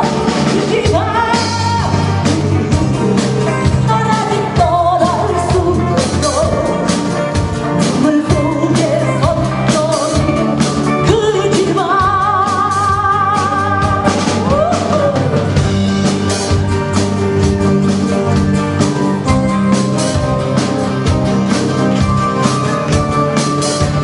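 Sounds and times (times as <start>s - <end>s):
person singing: 0.0s - 15.6s
drum kit: 0.0s - 24.0s
electric guitar: 0.0s - 24.0s.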